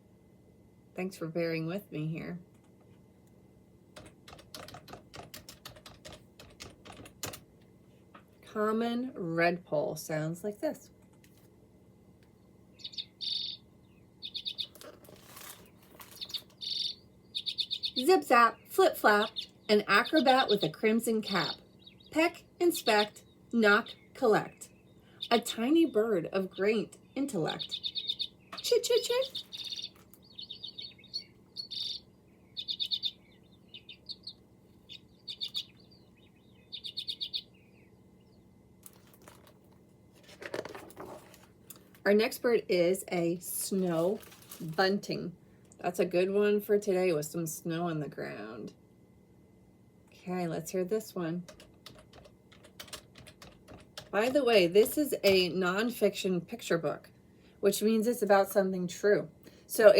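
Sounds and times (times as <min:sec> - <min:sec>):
redpoll chattering calls: 0:12.8 - 0:14.8, 0:16.1 - 0:37.9.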